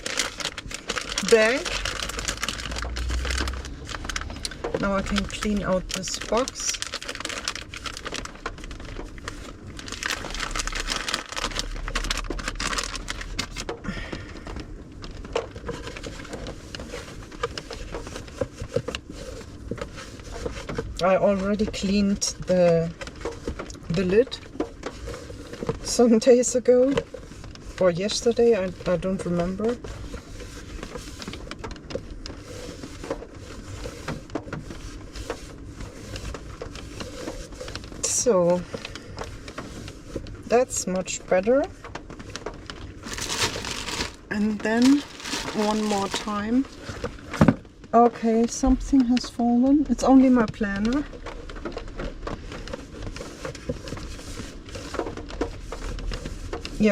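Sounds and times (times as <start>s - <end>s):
crinkling and rustling: 0.0s - 56.9s
wet wipe rubbing a box: 43.0s - 47.0s
wipes scrubbing a box: 43.2s - 46.8s, 52.8s - 56.9s.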